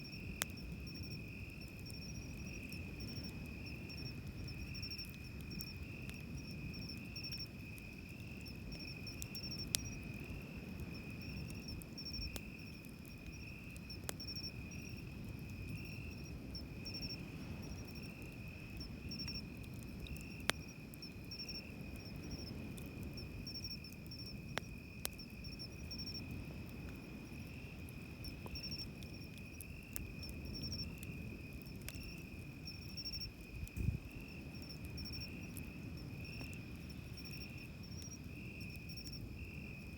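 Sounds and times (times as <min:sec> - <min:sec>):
cricket pulsing trill: 0:00.0 - 0:39.9
campfire wood popping: 0:00.1 - 0:39.9
cricket short chirps: 0:27.7 - 0:39.8.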